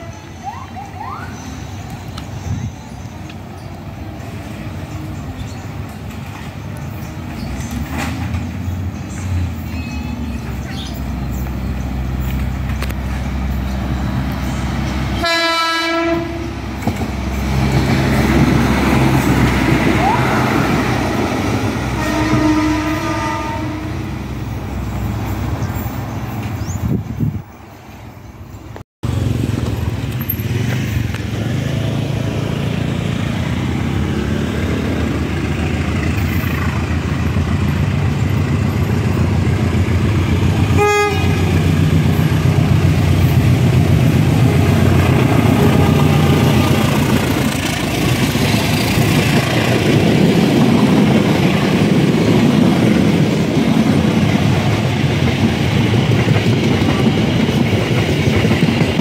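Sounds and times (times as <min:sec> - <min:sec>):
train coaches rolling past: 0:00.0 - 0:59.0
diesel locomotive engine running: 0:28.6 - 0:59.0.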